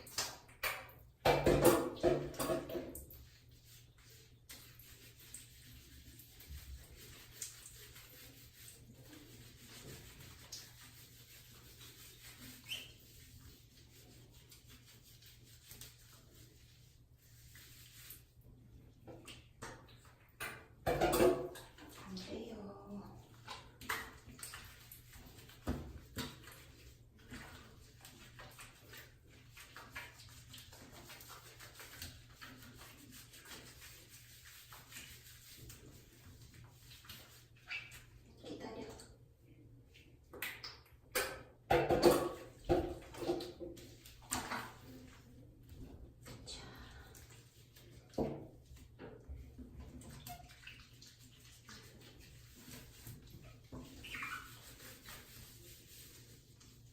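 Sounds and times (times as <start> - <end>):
faint rubbing and rustling: 1.2 - 38.6, 42.0 - 56.9
small water splashes: 49.9 - 56.0.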